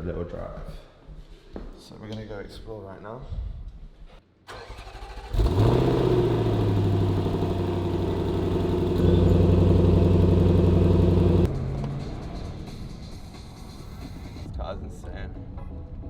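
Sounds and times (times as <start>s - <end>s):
car engine idling: 4.5s - 11.7s.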